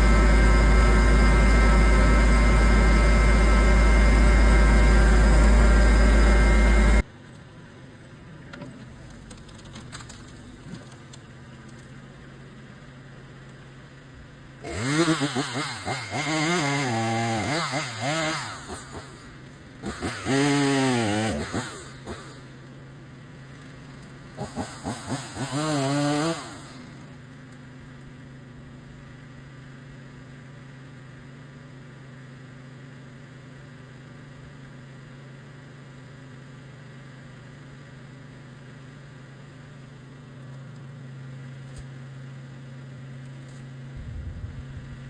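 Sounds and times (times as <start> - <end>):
chainsaw revving: 0.0 - 7.0, 14.6 - 22.7, 23.7 - 27.2
low engine hum: 0.0 - 14.6, 38.5 - 45.0.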